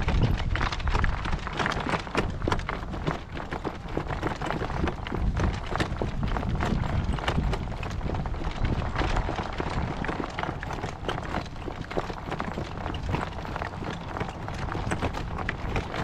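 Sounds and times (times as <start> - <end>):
steady low rumble: 0.0 - 1.5
horse hooves clip-clopping: 0.0 - 16.0.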